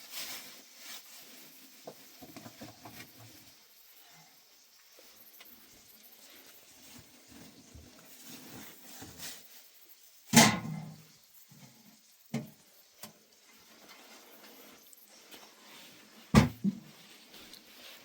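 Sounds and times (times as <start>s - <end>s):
objects knocking and thudding: 1.8s - 3.4s, 16.3s - 17.0s.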